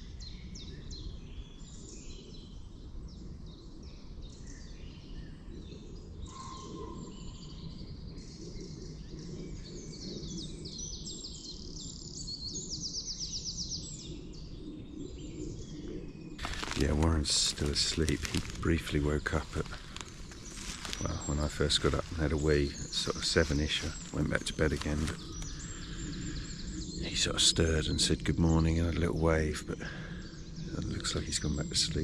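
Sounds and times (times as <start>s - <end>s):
birds chirping and whistling: 4.4s - 32.0s
steady low rumble: 16.4s - 32.0s.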